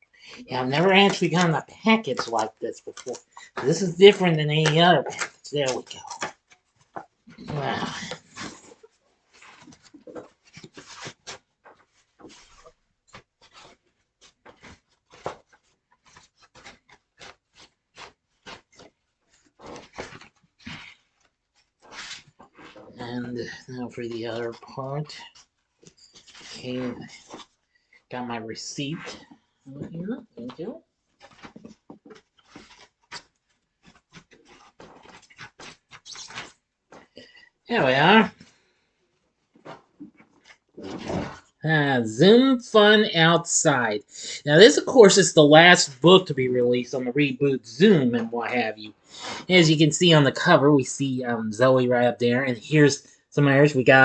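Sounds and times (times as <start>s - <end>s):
packaging crinkling and rustling: 5.1s - 23.0s, 31.1s - 37.2s.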